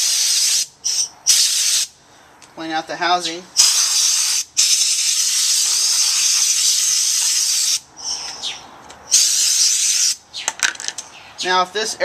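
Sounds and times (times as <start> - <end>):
compressed air hissing from nozzle: 0.0 - 2.0, 3.6 - 8.4, 9.1 - 10.2.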